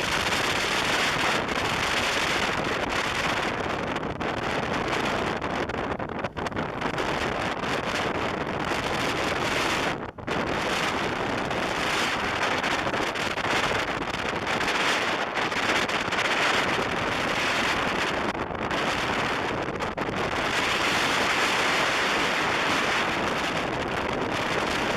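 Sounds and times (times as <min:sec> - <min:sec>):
motorcycle road and engine noise: 0:00.0 - 0:04.3
wind rushing over microphone: 0:00.0 - 0:24.9.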